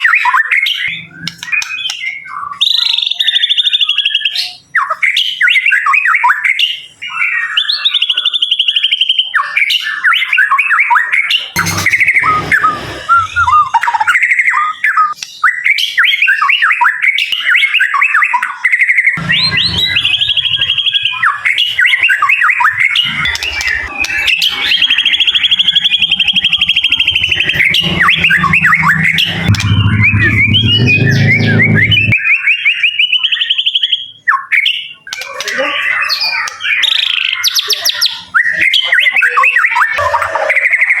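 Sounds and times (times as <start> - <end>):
low rumble: 11.6 - 14.0, 19.2 - 32.2
bird singing: 19.2 - 32.2.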